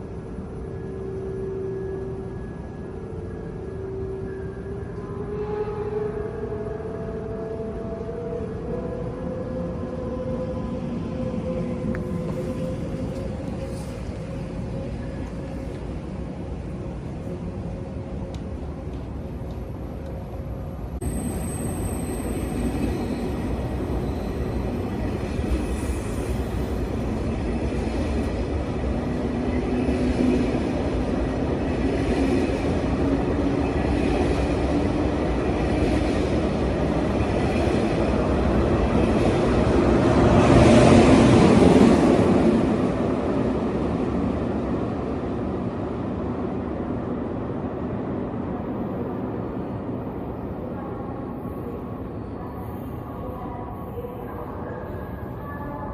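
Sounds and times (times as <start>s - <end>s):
train wheels rumbling on rail: 7.8s - 48.6s.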